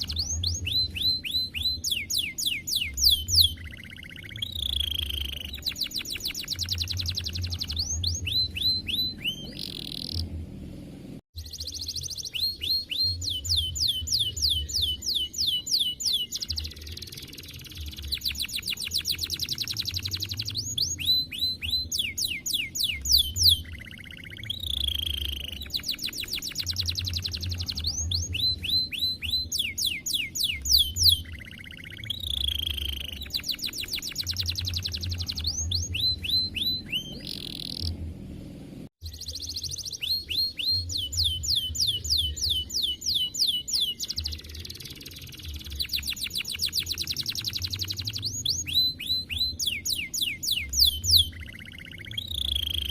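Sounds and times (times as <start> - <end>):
canary singing trills: 0.0 - 10.3, 11.4 - 38.0, 39.0 - 52.9.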